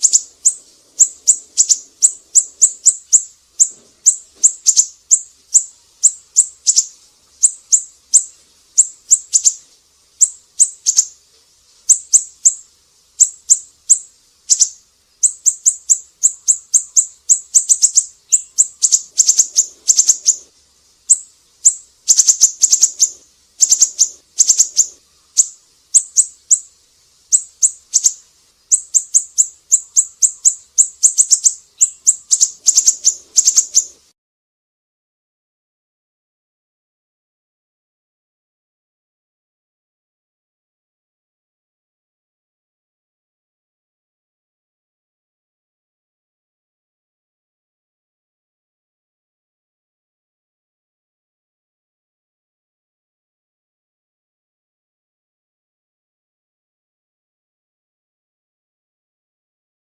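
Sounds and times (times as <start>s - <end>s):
bird high-pitched chips: 0.0s - 9.6s, 10.2s - 11.2s, 11.8s - 12.6s, 13.2s - 20.5s, 21.1s - 26.7s, 27.3s - 34.0s.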